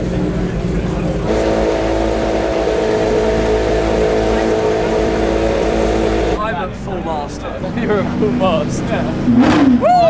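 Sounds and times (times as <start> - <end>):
car engine droning: 0.0 - 6.4.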